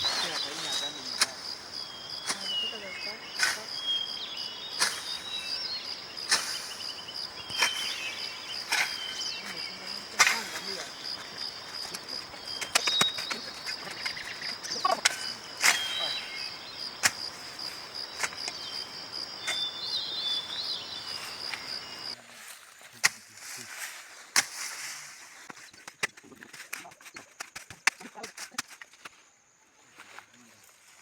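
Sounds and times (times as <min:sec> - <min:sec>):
bird chirps: 0:00.0 - 0:17.2, 0:17.8 - 0:22.2
insect trilling: 0:00.0 - 0:22.2.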